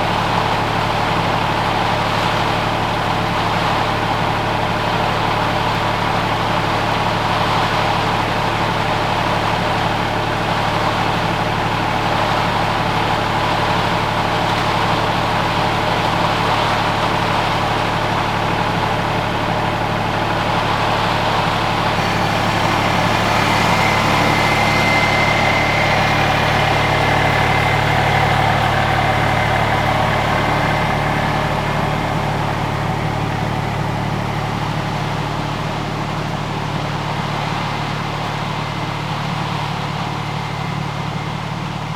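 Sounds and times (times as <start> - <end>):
motor humming: 21.9 - 32.4.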